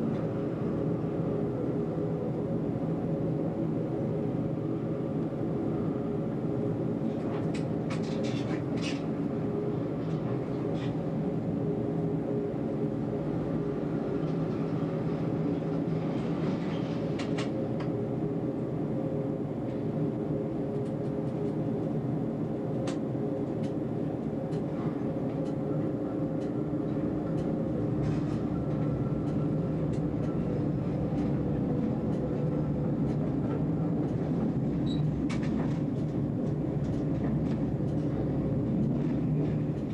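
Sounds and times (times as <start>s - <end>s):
tram rumble and motor hum: 0.0s - 39.9s.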